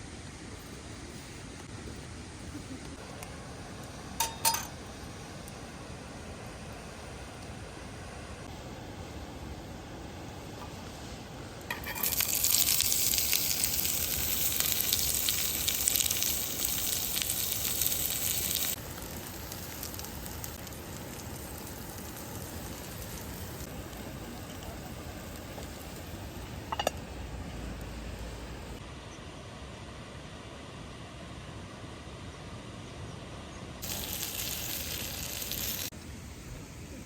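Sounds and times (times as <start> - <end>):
faint steady hiss: 0.0 - 37.0
food sizzling on a hot pan: 10.4 - 28.8, 33.8 - 35.9.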